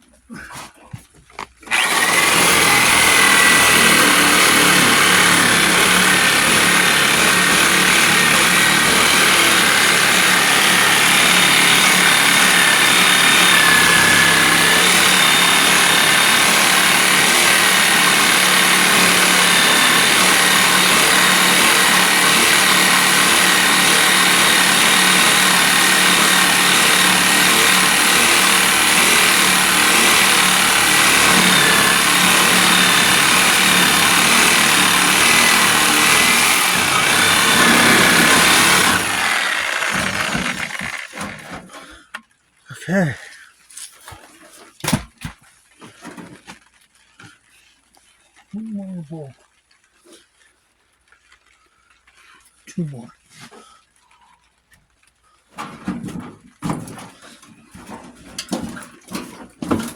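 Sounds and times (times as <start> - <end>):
reciprocating saw cutting: 1.6 - 41.7.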